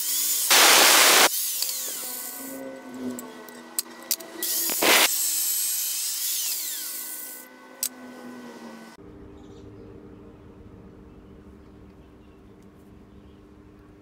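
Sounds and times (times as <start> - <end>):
power tool whirring: 0.0 - 9.0.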